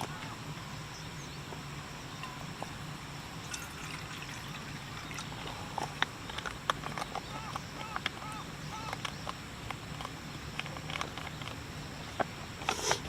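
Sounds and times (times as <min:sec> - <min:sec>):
running water: 0:02.2 - 0:06.3.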